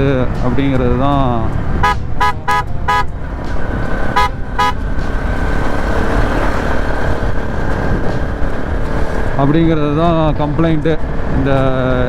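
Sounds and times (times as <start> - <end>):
motorcycle engine and road noise: 0.0 - 12.0
vehicle horn beeps: 1.8 - 3.2, 4.1 - 5.0.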